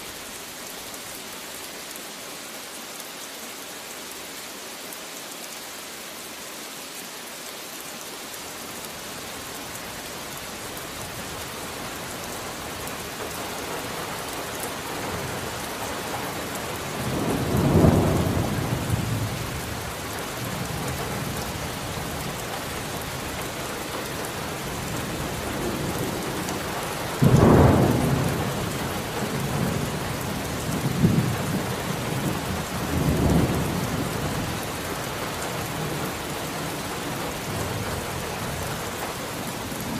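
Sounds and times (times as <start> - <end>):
steady rain: 0.0 - 39.9
thunder rumbling: 16.6 - 22.3, 24.7 - 34.6.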